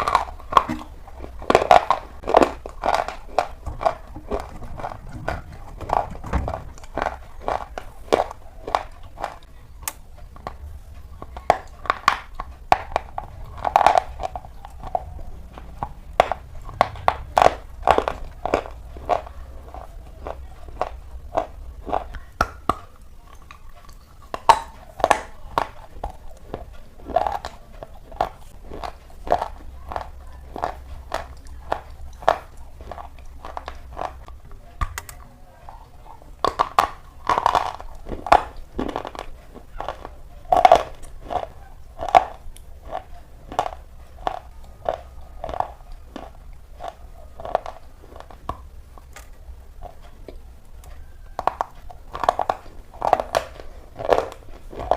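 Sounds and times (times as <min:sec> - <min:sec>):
slate pencils being chewed: 0:00.0 - 0:54.9.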